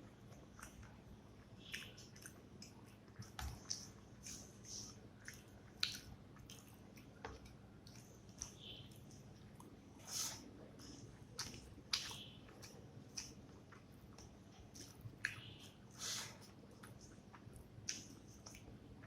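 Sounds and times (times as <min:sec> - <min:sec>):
person chewing with mouth smacks: 0:00.1 - 0:19.0.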